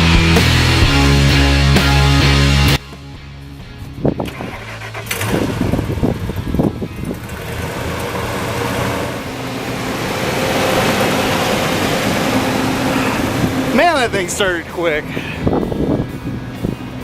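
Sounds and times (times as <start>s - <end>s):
pickup engine idling: 0.0s - 17.0s
engine cranking: 4.1s - 16.9s.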